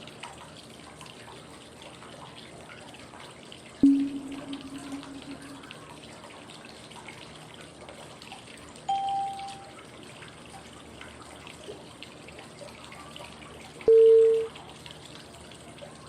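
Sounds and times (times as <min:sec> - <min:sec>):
flowing water: 0:00.0 - 0:16.0
water drips: 0:00.0 - 0:16.0
short electronic tone: 0:03.8 - 0:05.7.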